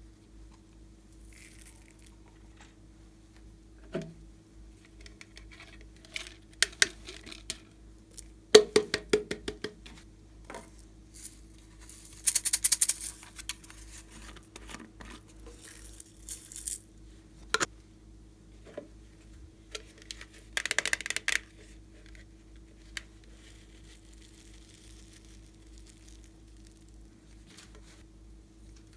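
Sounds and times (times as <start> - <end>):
clicks and rattling in slime: 5.0 - 7.6, 11.2 - 16.8, 19.8 - 21.5
crackly slime squishes: 22.9 - 27.5.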